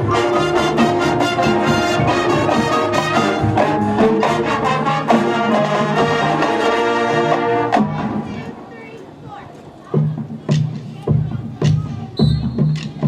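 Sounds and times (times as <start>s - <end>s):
steady drum beat: 0.0s - 6.4s, 9.9s - 13.0s
brass playing full chords: 0.0s - 8.2s.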